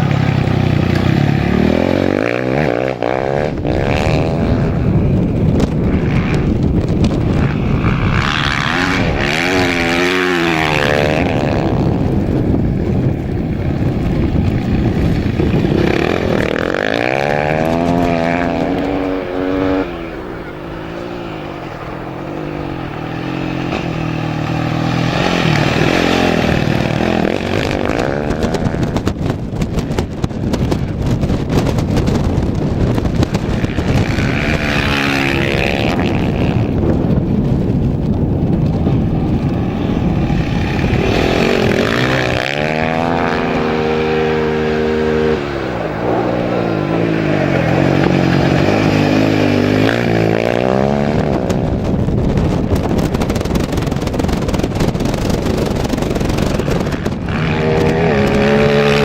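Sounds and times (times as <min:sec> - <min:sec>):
rally engines revving past: 0:00.0 - 0:29.2, 0:32.8 - 0:37.3, 0:37.9 - 0:53.9, 0:55.6 - 0:59.0.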